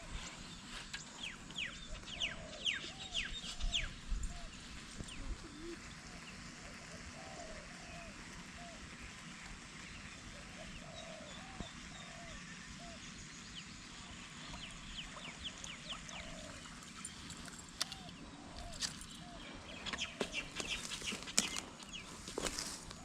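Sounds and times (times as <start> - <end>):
rustling: 20.2 - 23.0.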